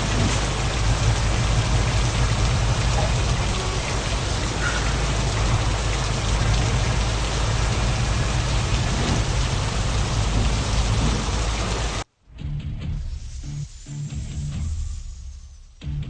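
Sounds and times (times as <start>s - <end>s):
truck engine drone: 0.0s - 12.0s
road and tyre noise: 0.0s - 12.1s.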